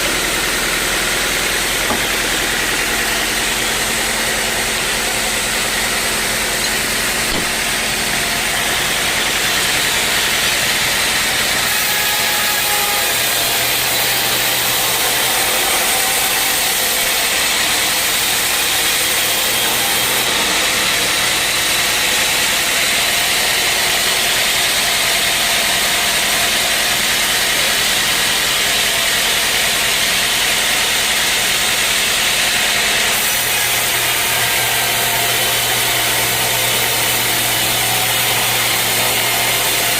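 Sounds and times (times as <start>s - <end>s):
saw cutting through wood: 0.0s - 39.9s.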